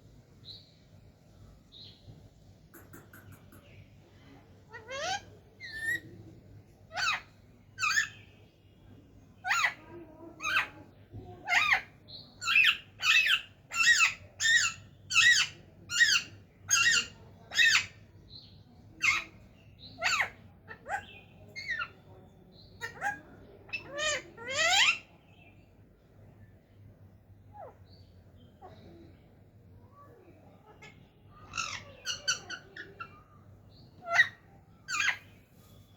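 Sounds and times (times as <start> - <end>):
parrot calling: 4.7 - 6.1, 30.6 - 33.2, 34.0 - 35.3.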